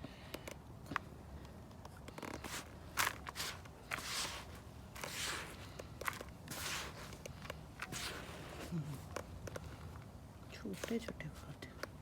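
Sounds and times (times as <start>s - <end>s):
rustling scrapes in loose soil: 2.3s - 9.9s.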